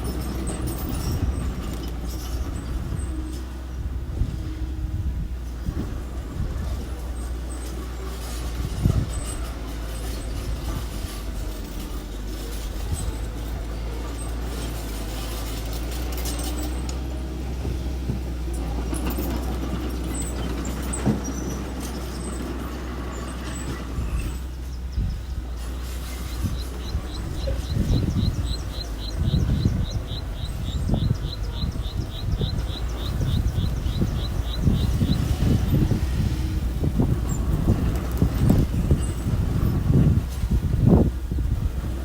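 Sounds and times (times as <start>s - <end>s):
earthmoving machine engine rumbling: 0.0s - 42.0s.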